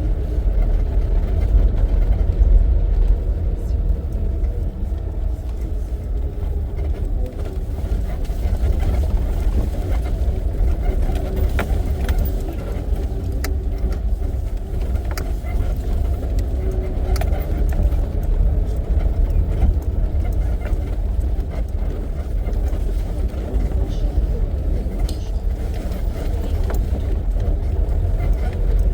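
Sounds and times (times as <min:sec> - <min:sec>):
jeep engine and road rumble: 0:00.0 - 0:28.9
vehicle body rattles: 0:00.0 - 0:28.9.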